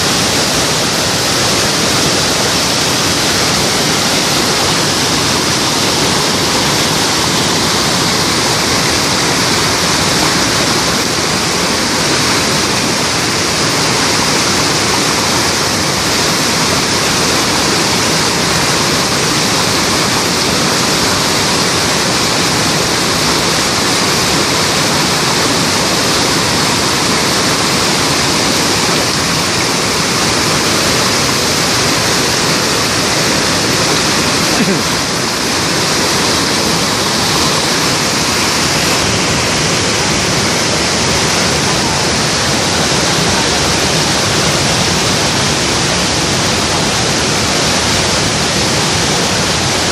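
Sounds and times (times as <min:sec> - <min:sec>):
waterfall rushing: 0:00.0 - 0:49.9.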